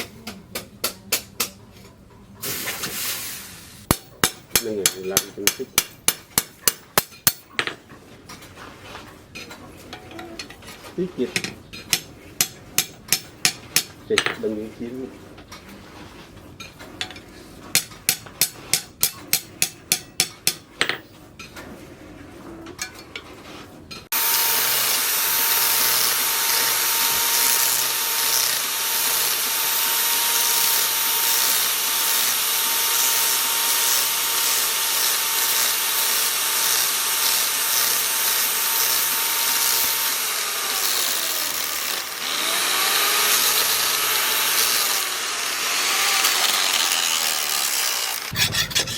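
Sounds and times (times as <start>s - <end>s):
hammer striking steel: 3.9s - 7.8s, 11.9s - 14.4s
power grinder on metal: 24.1s - 48.9s.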